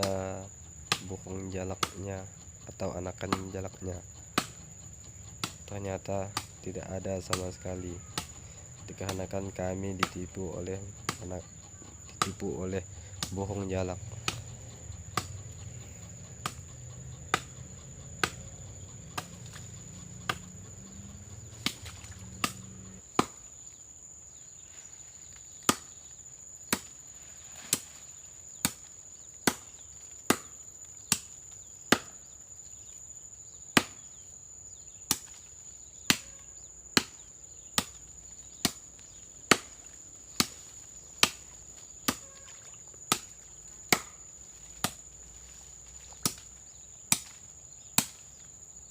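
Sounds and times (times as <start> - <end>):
insects buzzing: 0.0 - 48.9
blade chopping wood: 4.3 - 4.6, 6.3 - 6.6, 8.2 - 8.4, 11.0 - 11.3, 15.1 - 15.3, 16.4 - 16.6, 17.3 - 17.5, 18.2 - 18.4, 19.2 - 20.6, 21.5 - 23.4, 25.6 - 26.0, 26.7 - 27.0, 28.6 - 31.3, 31.9 - 32.2, 33.7 - 34.1, 35.1 - 36.3, 37.0 - 38.0, 38.6 - 38.9, 39.5 - 42.4, 43.1 - 44.2, 44.8 - 45.1, 46.2 - 48.3.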